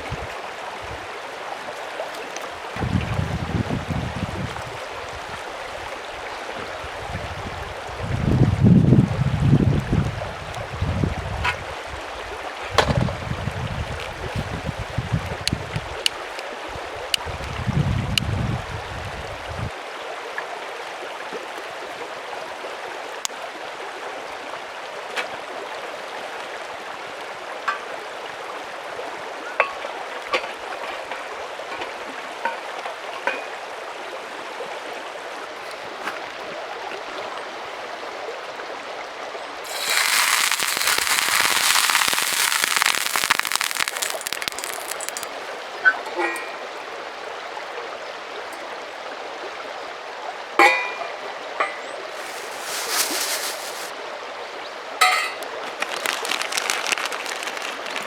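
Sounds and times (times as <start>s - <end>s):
mountain stream rushing: 39.6s - 45.5s, 52.1s - 54.0s, 55.1s - 58.0s
small clicks and pops: 39.7s - 45.3s, 55.4s - 58.0s.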